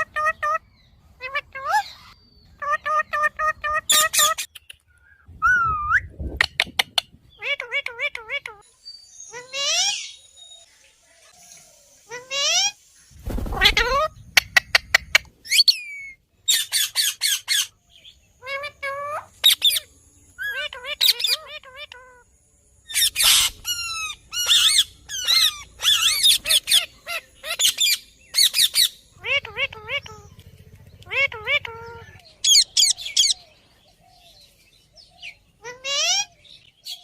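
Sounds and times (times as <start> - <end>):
parakeet squawks and chirps: 0.0 - 4.5, 9.3 - 10.2, 13.6 - 22.2, 22.9 - 30.3, 31.0 - 33.4, 35.2 - 37.0.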